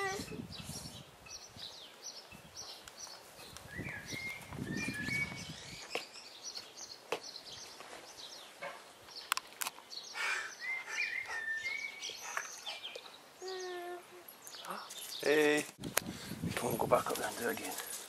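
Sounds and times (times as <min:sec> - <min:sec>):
songbirds chirping: 0:00.0 - 0:18.0
whistled bird notes: 0:03.7 - 0:06.3, 0:10.1 - 0:13.8.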